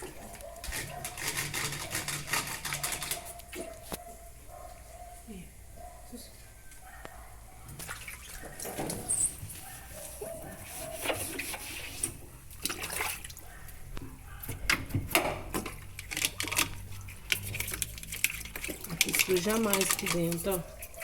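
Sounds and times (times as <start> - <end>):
water sloshing and splashing: 7.6 - 21.0.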